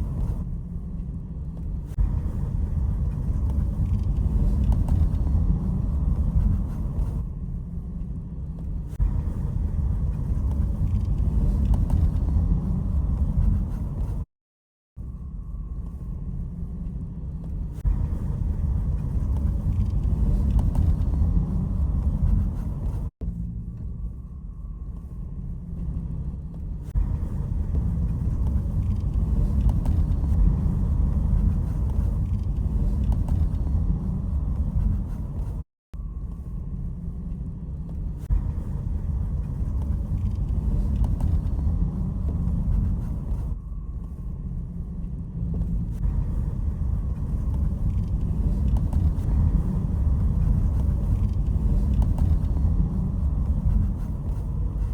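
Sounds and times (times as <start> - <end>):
car driving rumble: 17.5 - 23.6, 26.8 - 35.6, 44.7 - 54.9
road noise: 45.5 - 54.9.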